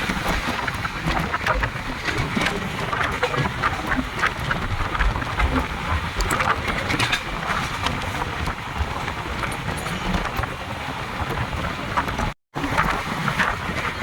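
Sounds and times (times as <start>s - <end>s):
coaches and wheels clicking and rattling: 0.0s - 14.0s
train rumbling along track: 0.0s - 14.0s.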